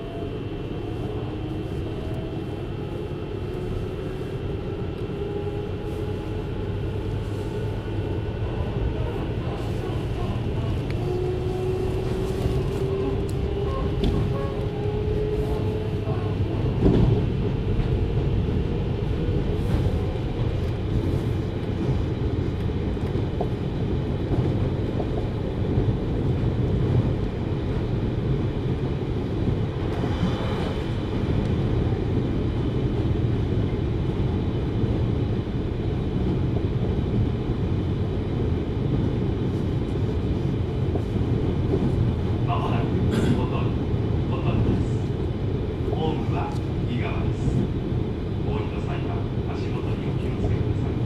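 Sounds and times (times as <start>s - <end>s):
train wheels rumbling on rail: 0.0s - 51.0s.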